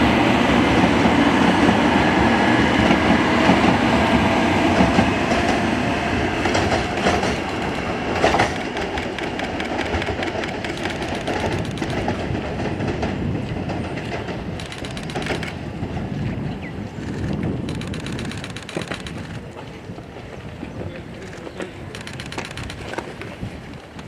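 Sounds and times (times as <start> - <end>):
train rushing past: 0.0 - 22.8
wheels clicking rhythmically: 6.4 - 15.6.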